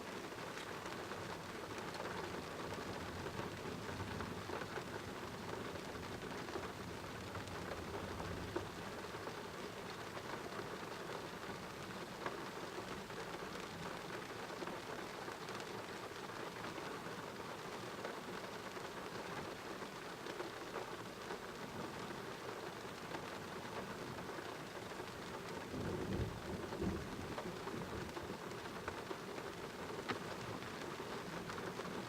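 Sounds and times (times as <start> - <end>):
rain pouring: 0.0 - 32.0
low rumble of thunder: 25.6 - 28.2.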